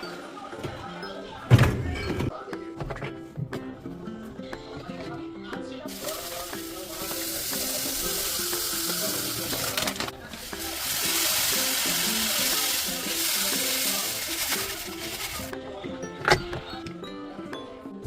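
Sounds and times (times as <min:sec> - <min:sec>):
background music: 0:00.0 - 0:18.0
water running from tap: 0:05.9 - 0:15.5.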